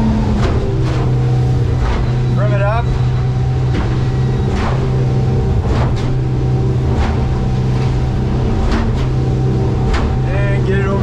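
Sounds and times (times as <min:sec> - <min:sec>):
outboard engine running: 0:00.0 - 0:11.0.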